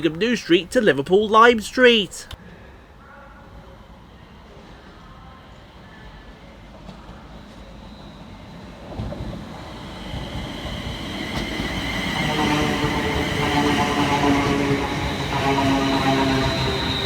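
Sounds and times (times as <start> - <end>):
electric train rumble: 7.2 - 17.0
train whine: 7.5 - 17.0.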